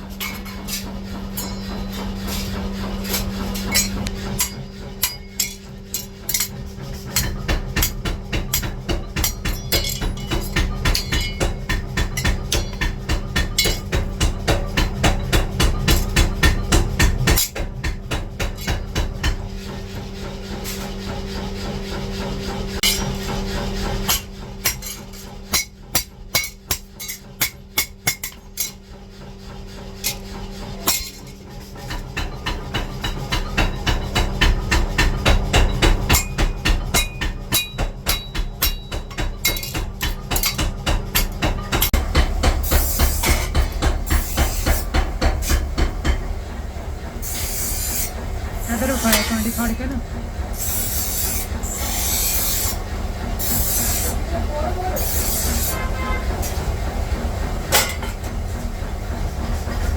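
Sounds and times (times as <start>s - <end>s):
low machine hum: 0.0s - 59.9s
hammer striking steel: 0.2s - 19.4s, 22.8s - 28.8s, 30.0s - 46.3s, 57.7s - 58.3s.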